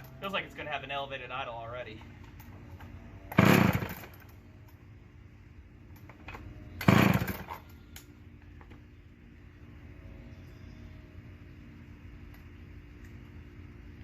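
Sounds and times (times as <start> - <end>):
chainsaw idling and revving: 3.4 - 4.2, 6.8 - 7.5.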